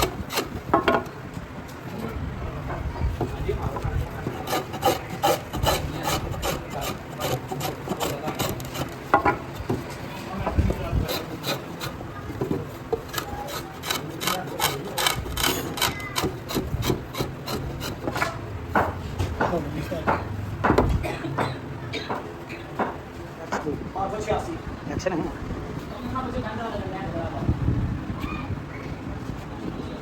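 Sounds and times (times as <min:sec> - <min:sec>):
hand tool rasping on wood: 0:00.0 - 0:00.6, 0:03.9 - 0:09.0, 0:10.8 - 0:12.0, 0:13.0 - 0:18.3.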